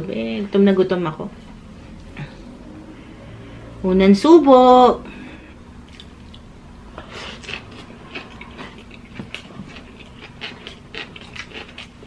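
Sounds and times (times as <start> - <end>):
steady low hum: 0.0 - 12.0
chewing and lip-smacking: 5.9 - 12.0.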